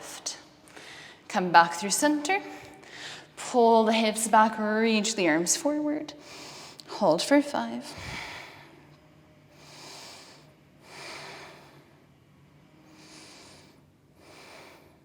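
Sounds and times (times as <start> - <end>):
person breathing: 0.7 - 1.3, 2.5 - 3.4.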